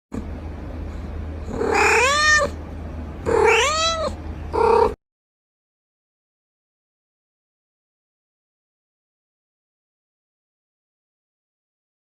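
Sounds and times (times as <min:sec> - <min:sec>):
low steady hum: 0:00.1 - 0:05.0
cat meowing: 0:01.5 - 0:02.6, 0:03.2 - 0:05.0.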